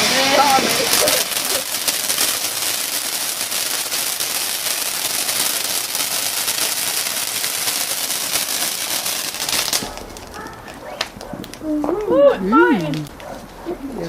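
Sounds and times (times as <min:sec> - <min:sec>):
firework fountain hissing: 0:00.0 - 0:13.2
firework crackling: 0:00.0 - 0:13.6.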